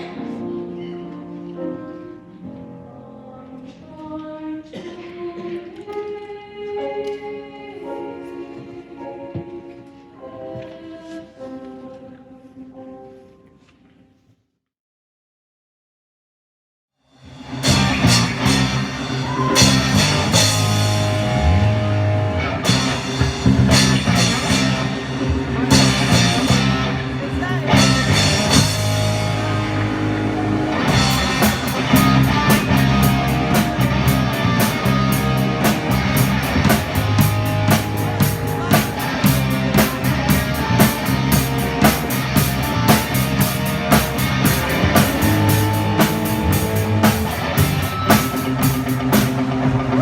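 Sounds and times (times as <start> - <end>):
choir singing sustained chords: 2.0 - 13.3, 18.5 - 50.0
rock music with guitars and drums: 17.5 - 50.0.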